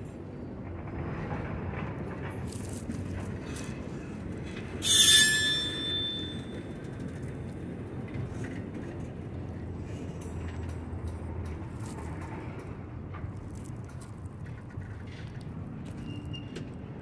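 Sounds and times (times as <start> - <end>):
train low rumble: 0.0 - 17.0
hiss with high squeal: 4.8 - 6.5.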